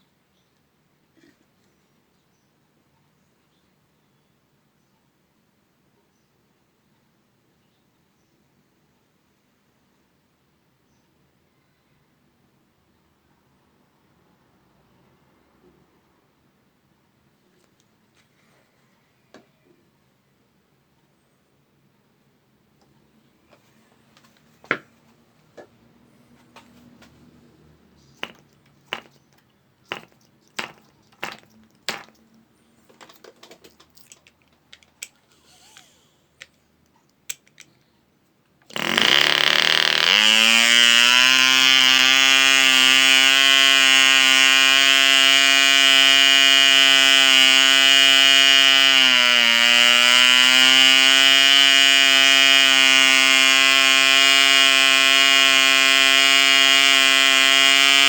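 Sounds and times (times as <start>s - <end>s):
model engine running with whine: 28.1s - 29.2s, 29.9s - 32.2s, 38.7s - 58.0s
propeller flicking clicks: 28.2s - 35.2s.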